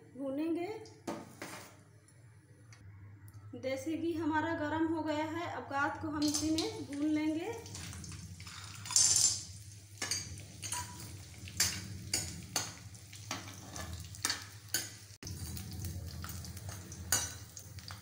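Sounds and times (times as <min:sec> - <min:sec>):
gum frying in hot ghee: 0:06.0 - 0:18.0.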